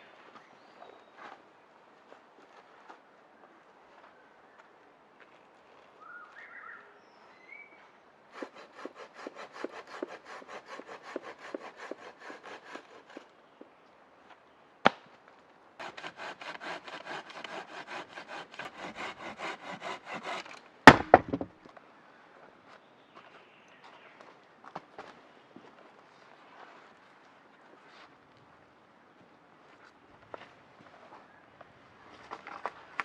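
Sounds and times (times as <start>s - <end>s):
hand saw cutting wood: 8.3s - 13.3s, 15.8s - 21.5s
wood cracking: 20.2s - 21.7s.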